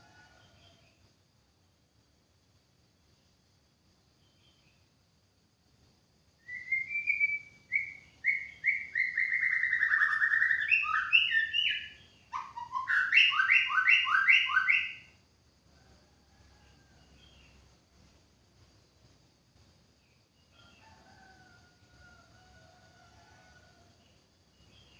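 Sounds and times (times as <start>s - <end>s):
bird singing whistled phrases: 6.4s - 15.1s.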